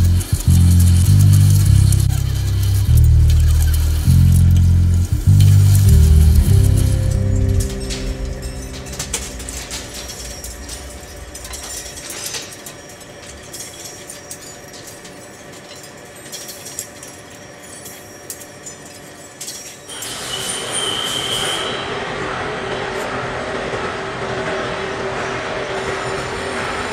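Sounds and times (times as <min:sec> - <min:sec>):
steady machine hum: 0:00.0 - 0:14.0, 0:21.8 - 0:26.9
metal being cut by machine: 0:00.0 - 0:15.3, 0:19.7 - 0:26.9.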